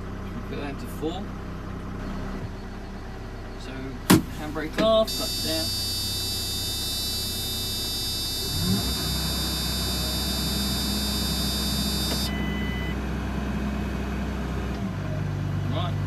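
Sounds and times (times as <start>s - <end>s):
tractor diesel engine running: 0.0s - 16.0s
high whine: 5.1s - 12.9s.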